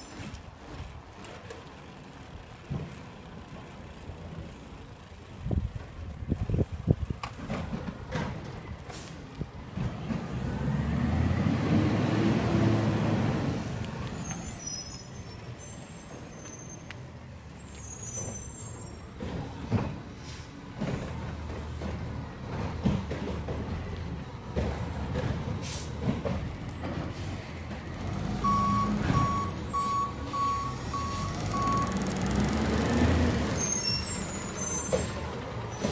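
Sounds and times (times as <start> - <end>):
knocks and clatter: 7.2 - 8.7, 20.8 - 27.1
diesel engine revving: 9.8 - 14.3, 22.4 - 35.9
high squeaks: 14.1 - 19.2, 33.4 - 35.9.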